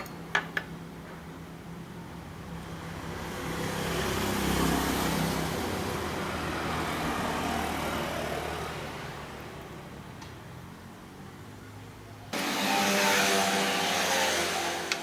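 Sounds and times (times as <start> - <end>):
motor vehicle passing: 2.6 - 10.0.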